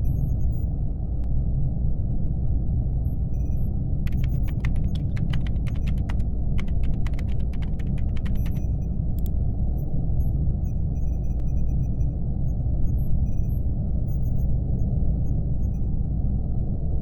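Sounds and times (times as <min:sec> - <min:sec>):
steady low hum: 0:00.0 - 0:17.0
laptop keyboard typing: 0:04.0 - 0:08.8.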